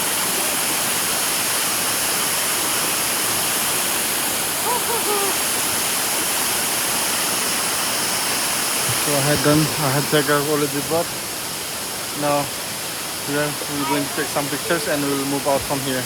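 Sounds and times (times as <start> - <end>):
waterfall pouring: 0.0 - 16.0
person calling out: 4.6 - 5.5, 13.6 - 15.0.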